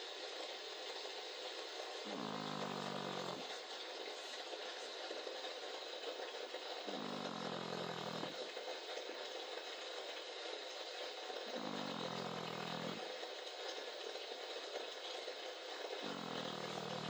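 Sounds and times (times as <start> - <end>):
dog snoring: 2.0 - 3.6, 6.8 - 8.5, 11.4 - 13.2, 15.8 - 17.0.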